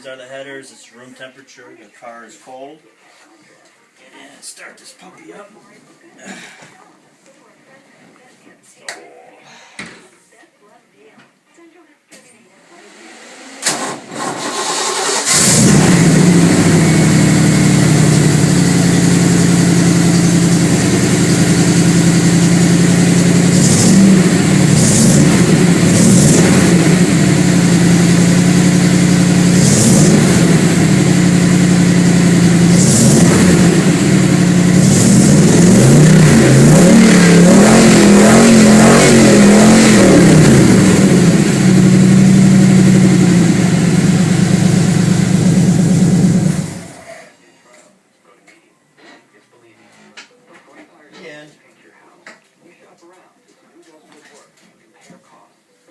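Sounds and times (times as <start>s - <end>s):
car engine idling and revving: 13.6s - 47.1s.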